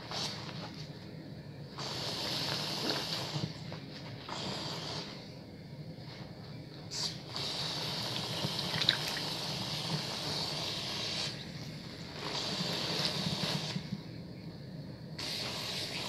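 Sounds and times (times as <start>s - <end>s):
wet bar soap being lathered: 8.1s - 9.3s.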